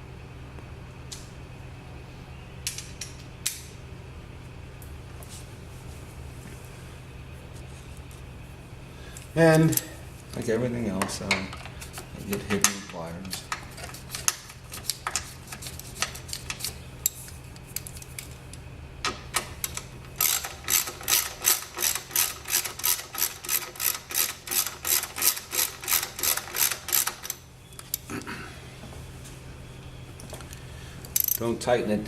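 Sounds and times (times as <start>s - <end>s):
ratchet wrench clicking: 19.6s - 28.0s, 31.2s - 31.4s.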